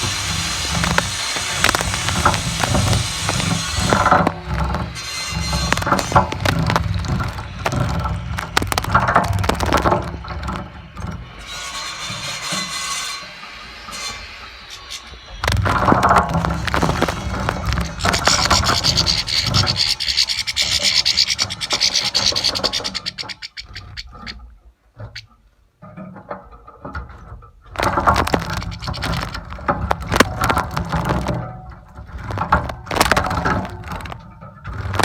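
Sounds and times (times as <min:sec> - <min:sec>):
bird splashing water: 0:00.0 - 0:10.7, 0:15.4 - 0:23.4, 0:27.8 - 0:31.4.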